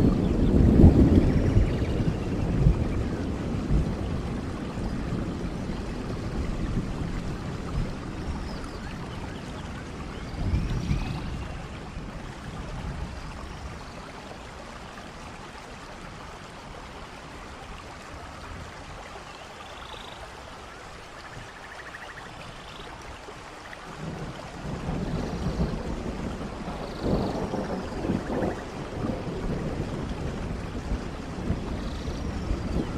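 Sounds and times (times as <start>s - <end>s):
low thunder rumbles: 0.0s - 14.2s, 24.0s - 32.9s
falling rain: 0.0s - 32.9s.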